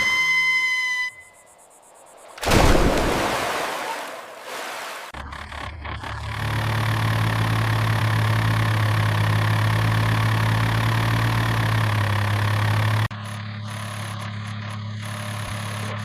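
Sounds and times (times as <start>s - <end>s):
quieter engine running: 5.0s - 16.0s
vehicle engine idling: 5.2s - 16.0s.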